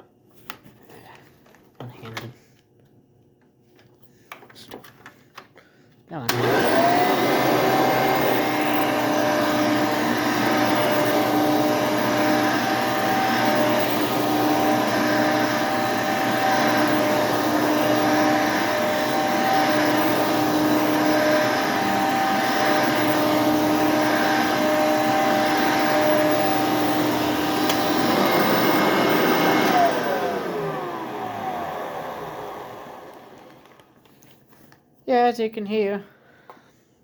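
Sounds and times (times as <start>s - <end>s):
vacuum cleaner running: 6.2s - 34.0s.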